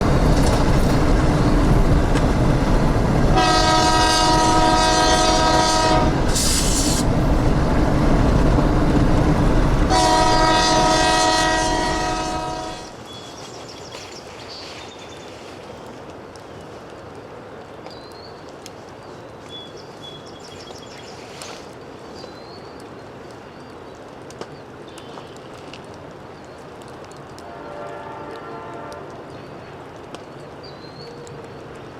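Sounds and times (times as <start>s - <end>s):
low engine rumble: 0.0s - 13.0s
steady rain hiss: 0.0s - 14.2s, 15.0s - 31.9s
light ticks of rain: 0.0s - 31.9s
locomotive air horn blast: 3.3s - 7.2s, 9.8s - 13.0s, 27.4s - 29.3s
air hiss: 5.4s - 8.1s.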